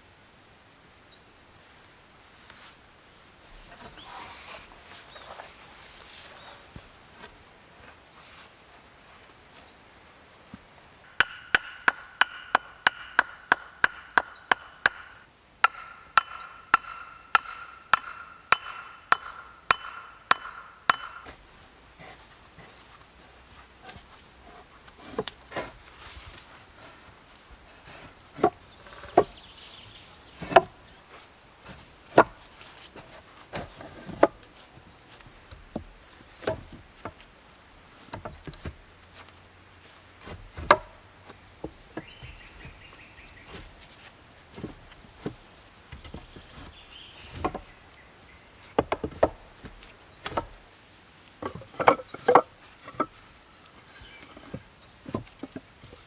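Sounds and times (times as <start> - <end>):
wood being chopped by hand: 11.1 - 22.8, 27.9 - 29.5, 30.3 - 31.0, 31.6 - 34.5, 35.1 - 37.3, 38.0 - 38.8, 40.2 - 47.8, 48.7 - 50.6, 51.4 - 53.2.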